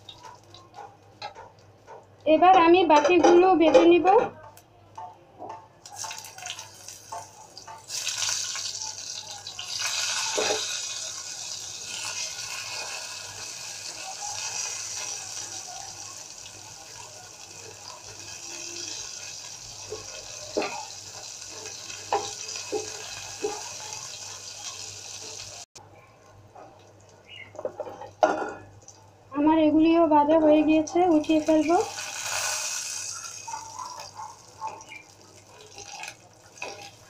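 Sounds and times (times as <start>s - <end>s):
vegetables sizzling in oil: 5.9s - 25.7s, 30.9s - 37.0s.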